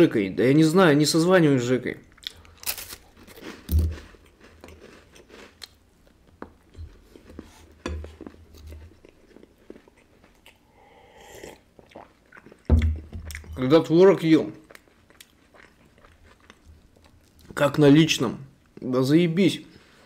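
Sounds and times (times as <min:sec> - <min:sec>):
person chewing crisp wafers: 0:02.0 - 0:13.6, 0:14.6 - 0:17.5
sip from a mug: 0:10.6 - 0:11.7.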